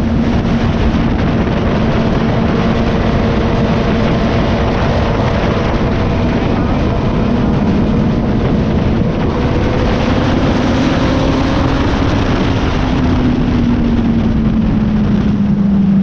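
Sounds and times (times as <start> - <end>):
motorcycle engine running: 0.0 - 16.0
wind rush: 0.0 - 16.0.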